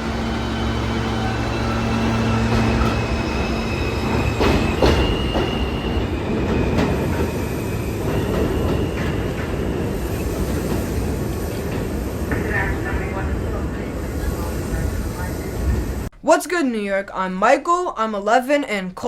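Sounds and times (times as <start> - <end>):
high wheel squeal: 0.0 - 12.3
subway car rumbling on track: 0.0 - 16.1.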